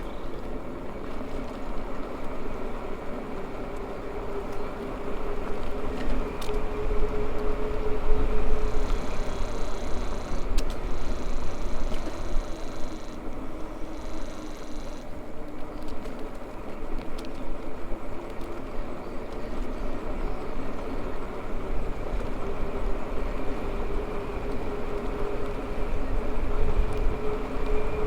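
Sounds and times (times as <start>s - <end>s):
electric motor whine: 7.8s - 15.1s.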